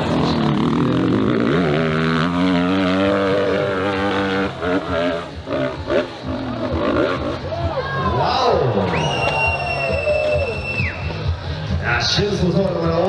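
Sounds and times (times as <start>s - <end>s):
dirt bike engine revving: 0.0s - 7.6s.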